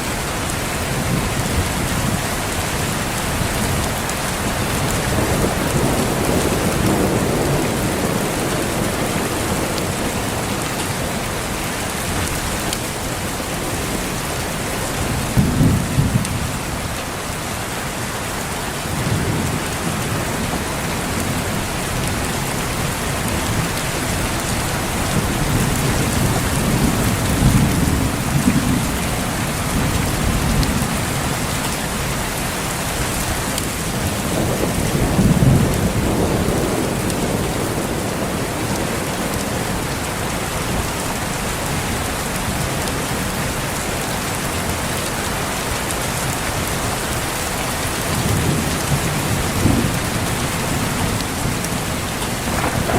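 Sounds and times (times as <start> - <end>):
steady rain falling: 0.0 - 52.9
low rolls of thunder: 13.8 - 16.6, 33.6 - 40.9, 48.0 - 52.9.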